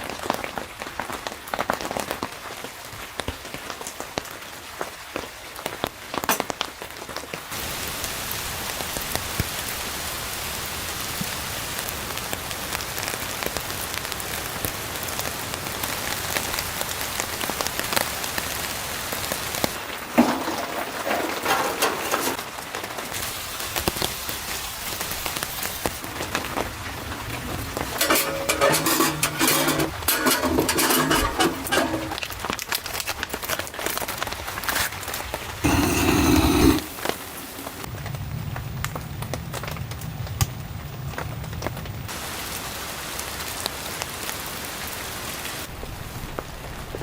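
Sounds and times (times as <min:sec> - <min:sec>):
rain falling: 0:00.0 - 0:31.0, 0:37.0 - 0:47.0
clattering: 0:20.2 - 0:22.4, 0:28.0 - 0:32.3, 0:35.6 - 0:37.8.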